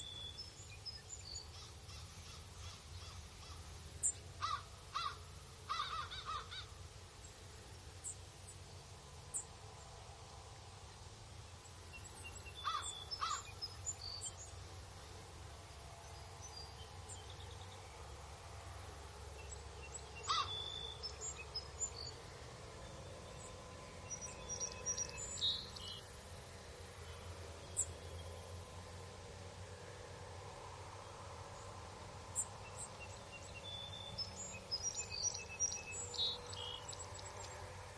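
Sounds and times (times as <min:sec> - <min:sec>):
low rumble of breeze: 0:00.0 - 0:37.9
harsh bird calls: 0:04.4 - 0:06.7, 0:12.6 - 0:14.2, 0:20.2 - 0:21.7.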